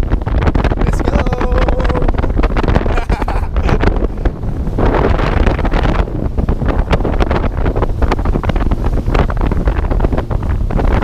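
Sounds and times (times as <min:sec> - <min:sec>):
jet ski engine: 0:00.0 - 0:11.0
wind buffeting microphone: 0:00.0 - 0:11.0.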